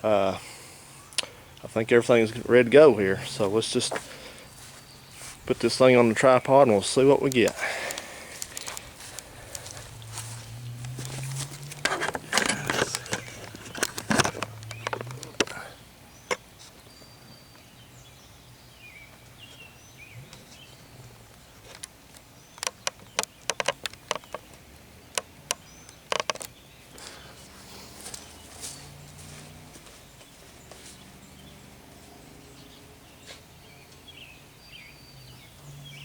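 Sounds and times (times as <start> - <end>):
handling knocks and rustling: 3.3 - 15.7
sharp clicks and taps: 7.2 - 15.6, 21.7 - 26.6.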